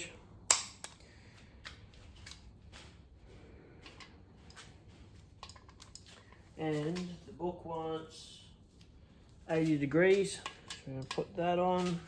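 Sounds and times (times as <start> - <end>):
hand tools clicking and tapping: 0.5 - 2.4, 10.1 - 12.0.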